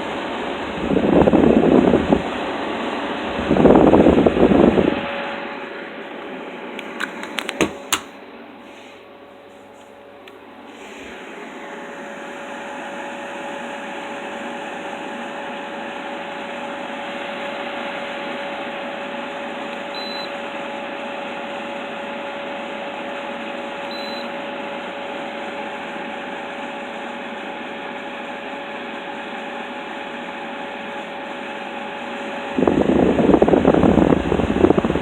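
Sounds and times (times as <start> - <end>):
air conditioner fan humming: 0.0 - 35.0.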